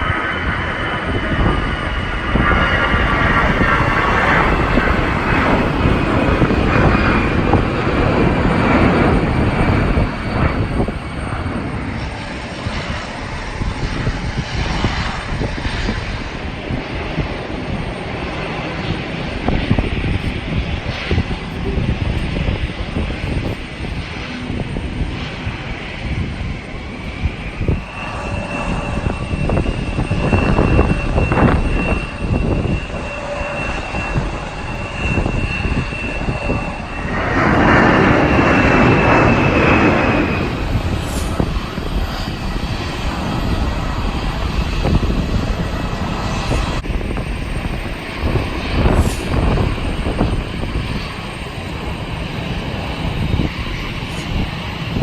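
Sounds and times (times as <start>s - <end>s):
jet engines whining: 0.0s - 55.0s
wind buffeting microphone: 0.0s - 55.0s.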